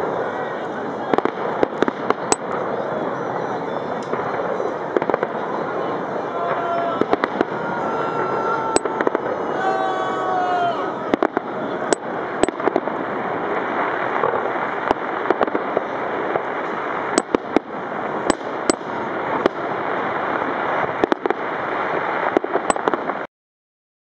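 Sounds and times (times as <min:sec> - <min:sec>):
distant firework bursts rumbling: 0:00.0 - 0:10.1, 0:10.9 - 0:23.3
firework shells banging: 0:16.3 - 0:19.8.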